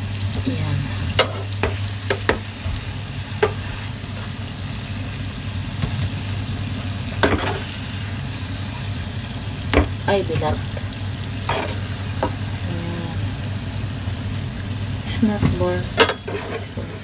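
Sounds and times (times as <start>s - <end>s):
utensil knocking against pan: 1.2s - 2.4s.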